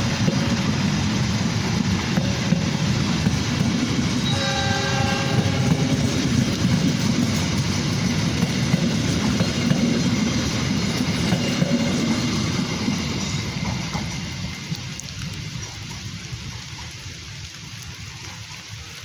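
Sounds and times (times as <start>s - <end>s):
train rumbling past: 0.0s - 18.5s
train horn: 4.2s - 6.8s.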